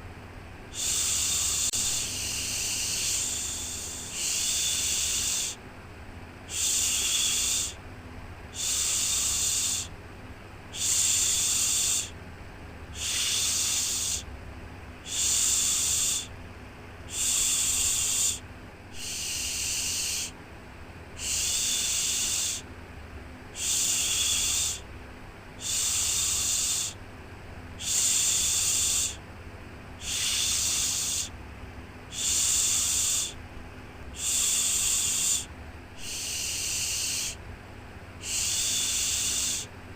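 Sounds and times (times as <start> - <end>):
person shushing: 0.7 - 5.6, 6.5 - 7.8, 8.6 - 9.9, 10.7 - 12.2, 12.9 - 14.3, 15.0 - 16.3, 17.1 - 18.4, 19.0 - 20.4, 21.2 - 22.6, 23.6 - 24.9, 25.6 - 27.0, 27.8 - 29.2, 30.0 - 31.3, 32.1 - 33.4, 34.1 - 37.4, 38.2 - 39.7.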